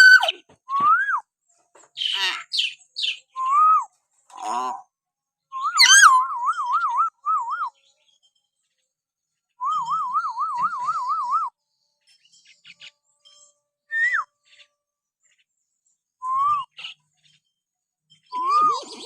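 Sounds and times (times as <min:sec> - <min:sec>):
myna whistling and calling: 0:00.0 - 0:01.2, 0:05.6 - 0:07.7, 0:13.9 - 0:14.3, 0:18.3 - 0:19.0.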